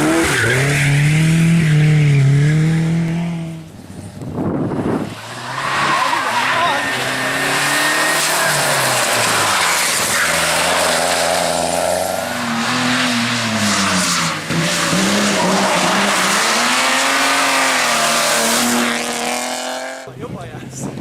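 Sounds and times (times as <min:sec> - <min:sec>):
rally car engine revving: 0:00.0 - 0:03.7, 0:04.4 - 0:20.1
tyres sliding: 0:05.1 - 0:19.4.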